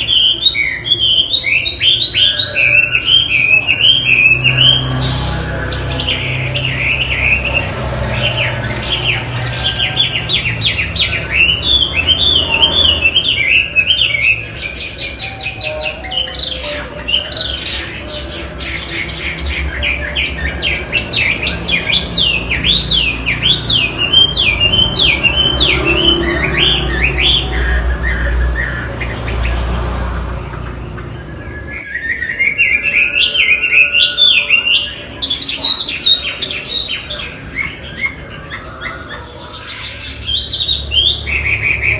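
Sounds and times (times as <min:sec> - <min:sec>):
bird singing whistled notes: 0:00.0 - 0:29.5, 0:30.9 - 0:41.9.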